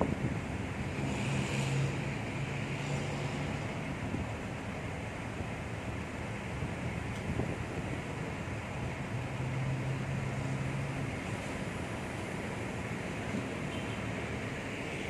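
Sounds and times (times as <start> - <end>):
wind noise on microphone: 0.0 - 2.2, 7.2 - 8.0
low engine hum: 0.0 - 15.0.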